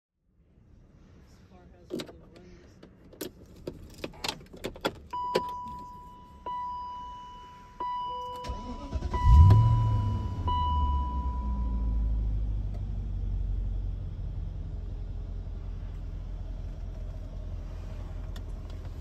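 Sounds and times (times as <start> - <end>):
car engine starting and idling: 1.7 - 19.0
keys jangling in ignition: 2.8 - 6.0.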